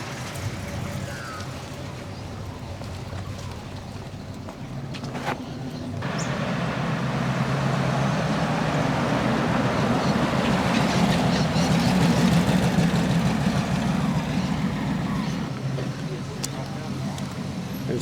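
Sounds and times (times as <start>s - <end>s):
car engine rumbling driving past: 6.0s - 15.5s.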